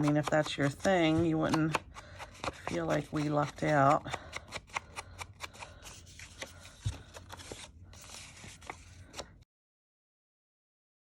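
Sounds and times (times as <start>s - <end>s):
paper rustling and crinkling: 0.0s - 9.4s.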